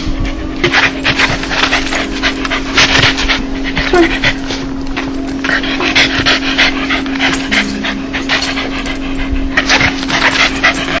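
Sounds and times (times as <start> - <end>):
dog panting: 0.0 - 11.0
low hum: 0.0 - 11.0.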